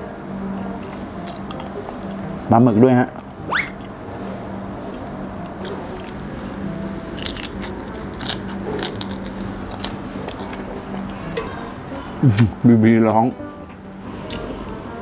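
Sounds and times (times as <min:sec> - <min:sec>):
person chewing: 0:00.8 - 0:02.5, 0:03.1 - 0:12.5, 0:14.1 - 0:14.8
crisp lettuce crunches: 0:05.6 - 0:11.2.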